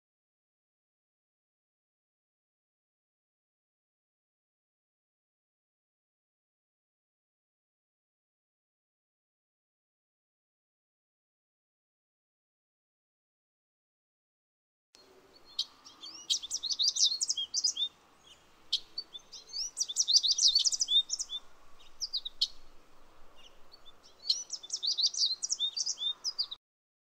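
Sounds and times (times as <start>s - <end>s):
faint outdoor hiss: 15.0s - 26.6s
songbirds chirping: 15.0s - 26.6s.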